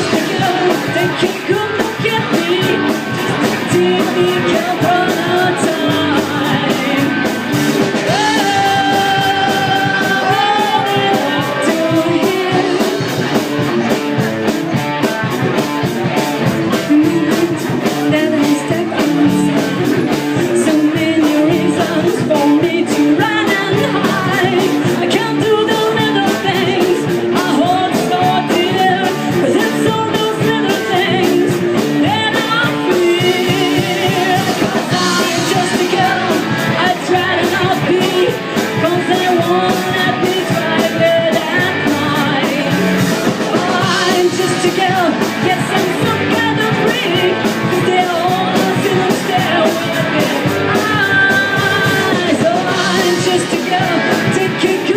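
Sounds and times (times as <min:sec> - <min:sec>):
live rock band playing: 0:00.0 - 0:54.9
lead singer holding long notes: 0:07.9 - 0:13.2.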